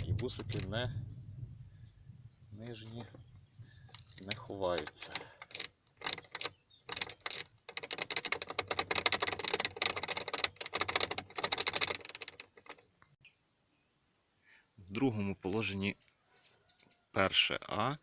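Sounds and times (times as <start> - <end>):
key rattling in ignition lock: 2.6 - 12.9.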